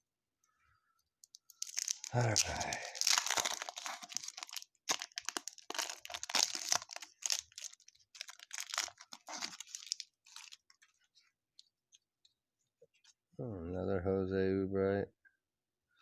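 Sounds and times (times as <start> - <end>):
wrapper crinkling and tearing: 1.2 - 11.1.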